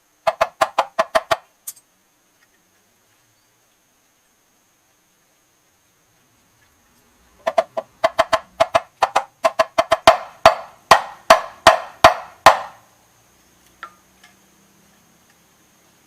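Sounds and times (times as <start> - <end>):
hammer striking metal: 9.9 - 12.8.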